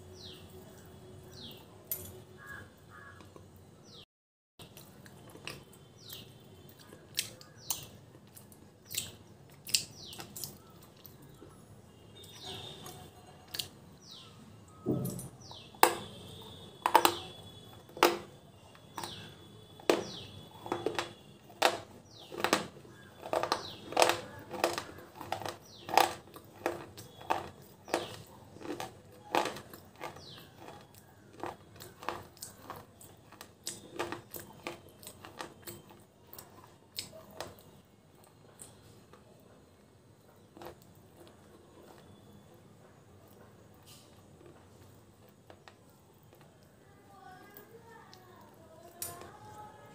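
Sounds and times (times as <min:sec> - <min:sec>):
close-mouthed chewing: 0:04.6 - 0:11.6, 0:16.4 - 0:39.2, 0:40.3 - 0:42.4, 0:43.2 - 0:46.8
clay crunching between teeth: 0:15.8 - 0:38.8.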